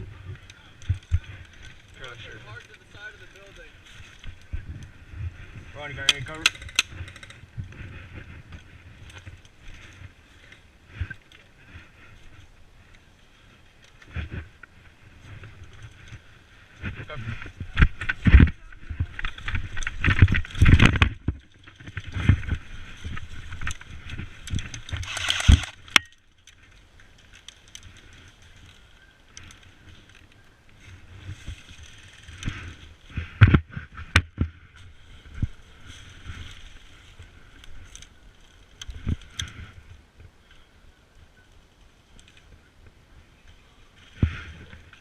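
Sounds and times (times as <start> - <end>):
camera handling rustling: 24.5 - 26.1.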